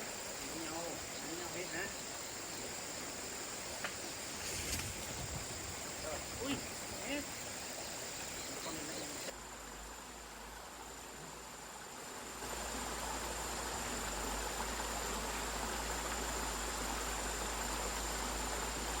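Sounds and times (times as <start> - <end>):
insect chirring: 0.0 - 9.3
rushing hiss: 0.0 - 9.3.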